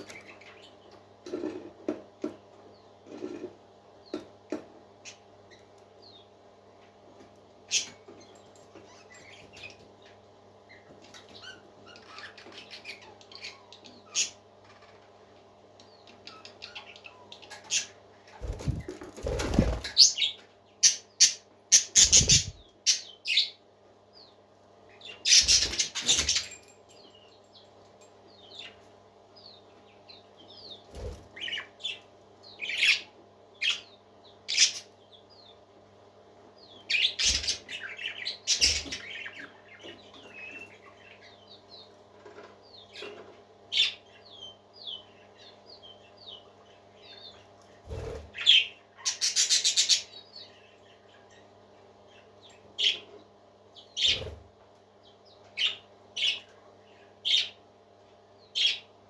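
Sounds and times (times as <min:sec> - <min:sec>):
parakeets chirping: 0:10.7 - 0:15.2, 0:16.0 - 0:23.6, 0:25.0 - 0:26.6, 0:32.6 - 0:35.6, 0:36.7 - 0:41.8, 0:42.7 - 0:51.4, 0:52.8 - 0:53.2, 0:53.9 - 0:54.4, 0:55.6 - 0:56.4, 0:57.2 - 0:57.6, 0:58.5 - 0:58.9.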